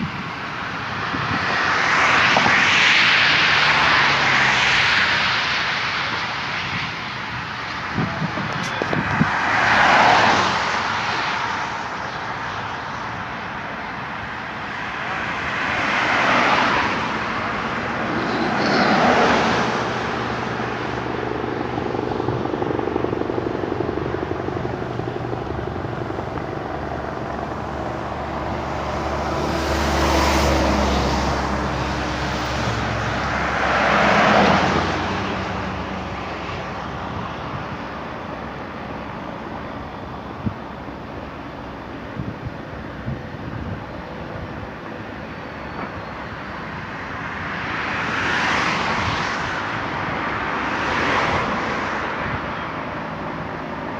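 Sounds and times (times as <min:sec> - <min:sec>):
vehicles passing by: 0:00.0 - 0:53.9
low engine hum: 0:15.8 - 0:47.2.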